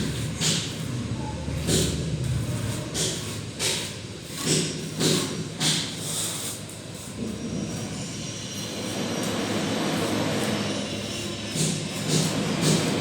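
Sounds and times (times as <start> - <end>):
trowel scraping wet plaster: 2.5 - 6.6.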